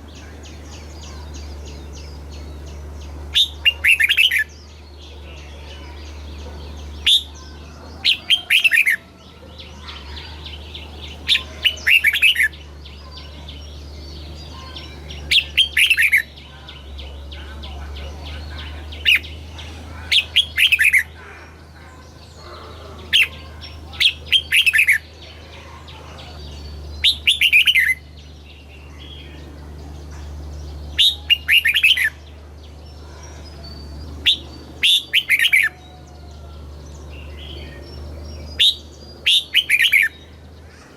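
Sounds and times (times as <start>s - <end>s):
bird whistled song: 23.2s - 25.2s, 26.4s - 29.5s, 30.6s - 40.5s.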